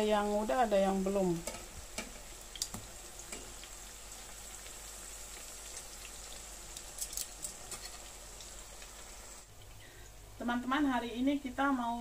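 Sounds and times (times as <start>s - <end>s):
food sizzling in hot oil: 0.0s - 9.5s.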